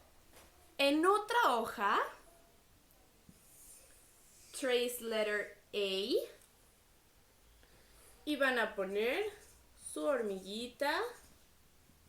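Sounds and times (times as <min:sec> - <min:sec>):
woman speaking: 0:00.8 - 0:02.3, 0:04.6 - 0:06.4, 0:08.2 - 0:11.3.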